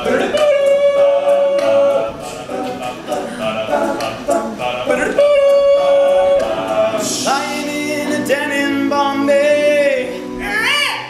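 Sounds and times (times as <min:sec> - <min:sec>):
male a cappella group singing: 0:00.0 - 0:10.4.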